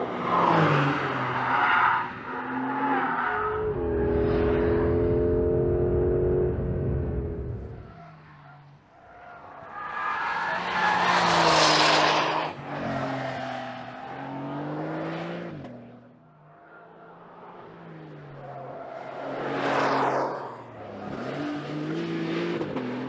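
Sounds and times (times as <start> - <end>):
car engine accelerating: 2.3 - 8.7.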